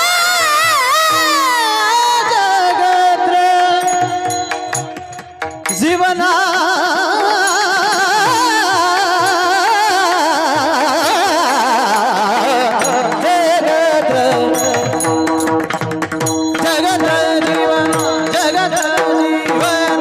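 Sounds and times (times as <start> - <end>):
person singing with vibrato: 0.0 - 15.7, 16.5 - 20.0
drum strokes: 12.6 - 20.0.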